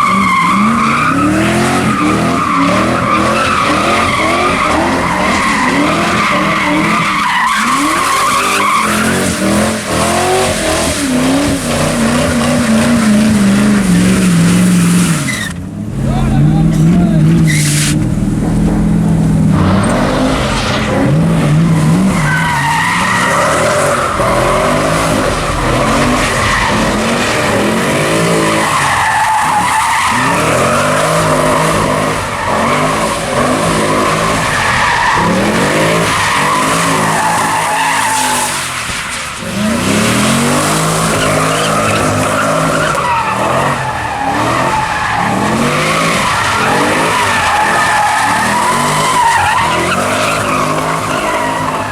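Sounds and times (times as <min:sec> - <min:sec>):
tyres squealing: 0:00.0 - 0:15.6, 0:19.8 - 0:51.9
car engine revving: 0:00.0 - 0:51.9.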